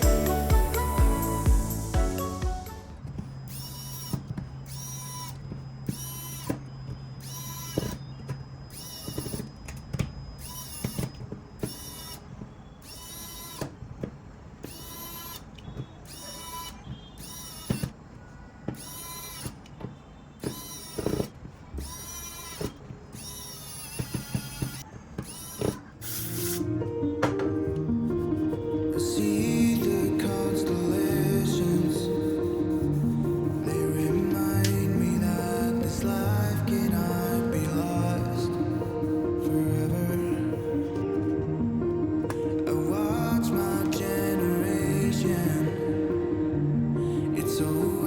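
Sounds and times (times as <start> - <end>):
small electric motor whirring: 3.4 - 13.8, 14.6 - 17.9, 18.8 - 19.6, 20.4 - 26.6.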